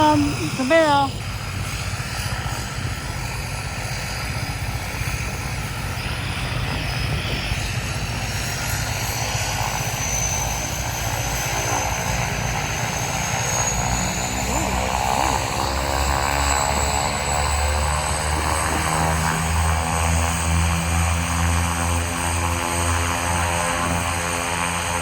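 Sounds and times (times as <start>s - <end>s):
propeller plane engines drone: 0.0s - 25.0s
high engine whine rising: 4.8s - 23.1s.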